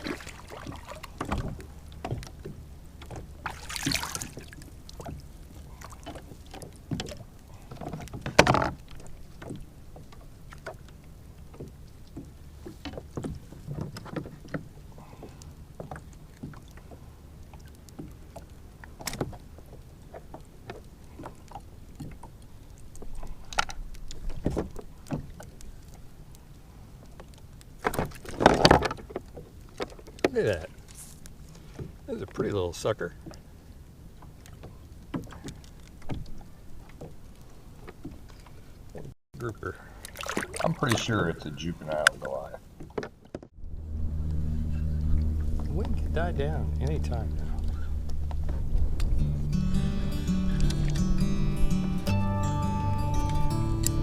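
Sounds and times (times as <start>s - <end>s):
low steady rumble: 0.0s - 7.7s, 43.6s - 54.0s.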